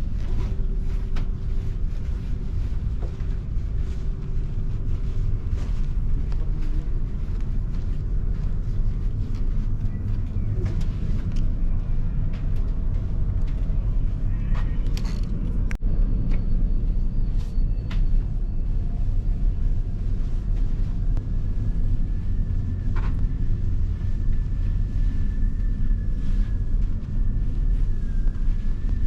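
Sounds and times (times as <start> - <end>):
vehicle engine rumble: 0.0 - 29.0.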